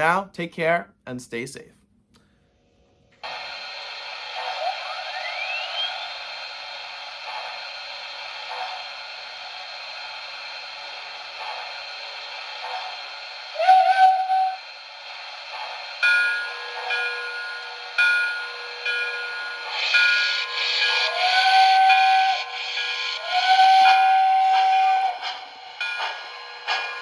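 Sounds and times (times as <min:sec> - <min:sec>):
model steam locomotive chuffing: 0:03.2 - 0:27.0
model train whistle blasts: 0:13.6 - 0:14.6, 0:20.9 - 0:22.5, 0:23.2 - 0:25.4.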